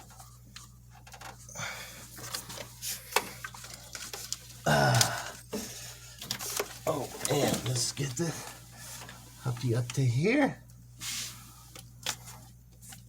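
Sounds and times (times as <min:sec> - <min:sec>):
hands clicking and rustling wires: 0:00.0 - 0:10.8, 0:11.6 - 0:13.0
low electrical hum: 0:00.0 - 0:13.0
grunt-like vocal sound: 0:04.7 - 0:05.3.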